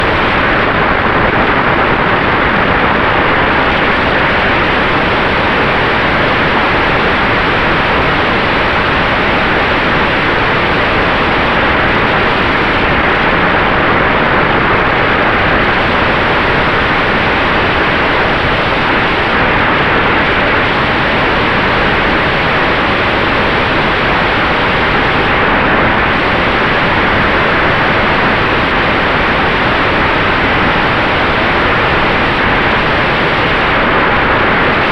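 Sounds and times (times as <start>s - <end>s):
faint whine: 0.0s - 34.9s.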